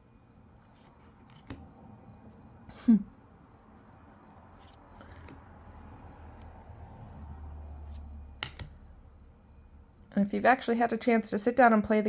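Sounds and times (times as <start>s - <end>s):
faint card handling noise: 0.6s - 1.7s, 4.6s - 5.5s.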